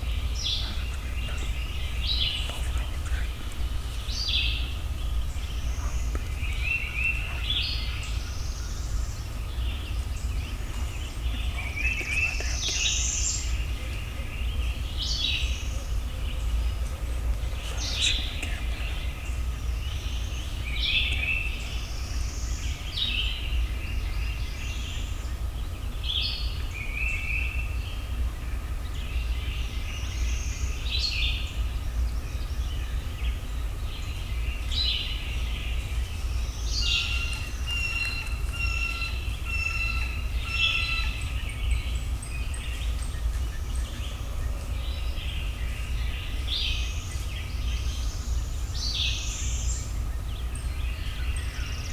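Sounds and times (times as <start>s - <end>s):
steady low rumble: 0.0s - 26.9s
songbirds chirping: 0.0s - 51.9s.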